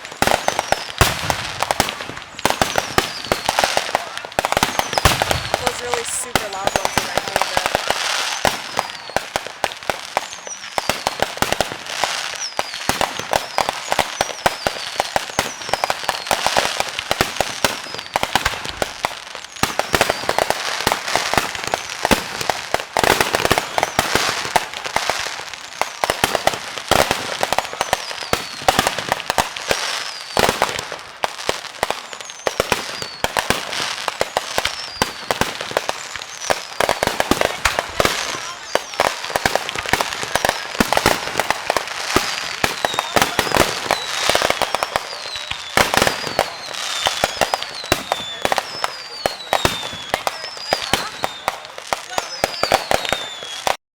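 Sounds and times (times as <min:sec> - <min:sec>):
falling firework whistles: 0:00.0 - 0:03.8, 0:04.5 - 0:16.7, 0:27.0 - 0:30.8, 0:31.9 - 0:53.8
fireworks bangs and crackling: 0:00.0 - 0:53.8.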